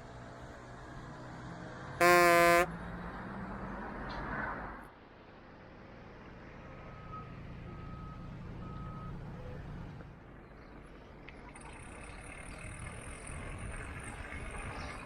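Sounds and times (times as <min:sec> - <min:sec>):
short electronic beeps: 0:02.0 - 0:02.7.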